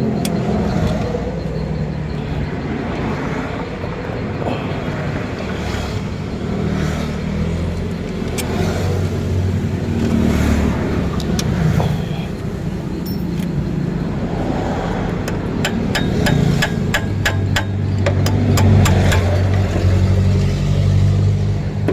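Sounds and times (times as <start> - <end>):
sharp clicks: 7.7 - 8.8, 15.2 - 19.6.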